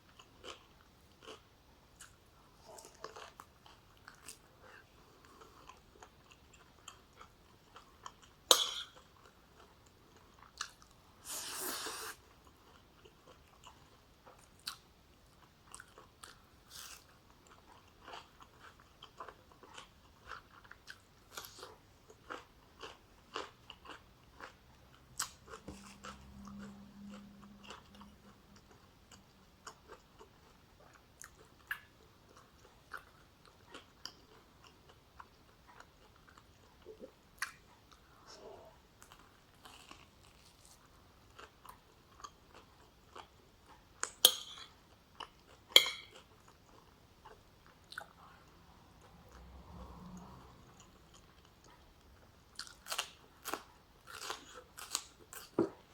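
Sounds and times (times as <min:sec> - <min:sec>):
person chewing food: 0:00.1 - 0:55.9.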